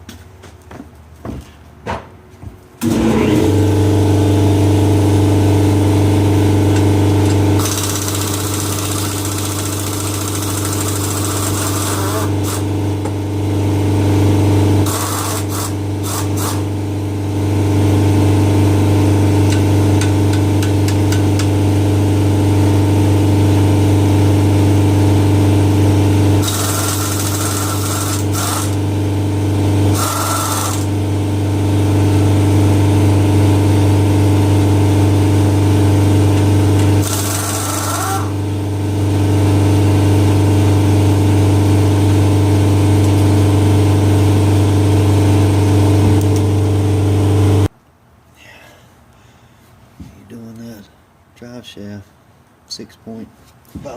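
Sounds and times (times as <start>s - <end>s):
machine drone: 2.8s - 13.1s, 13.8s - 28.8s, 29.9s - 47.7s
power tool hissing bursts: 7.6s - 12.7s, 14.8s - 16.7s, 26.4s - 28.8s, 29.9s - 30.9s, 37.0s - 38.4s.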